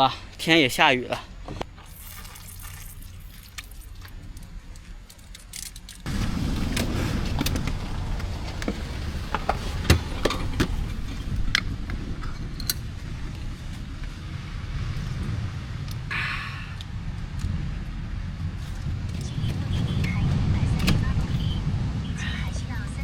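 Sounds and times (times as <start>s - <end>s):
vehicle rumbling over rough road: 1.2s - 23.0s.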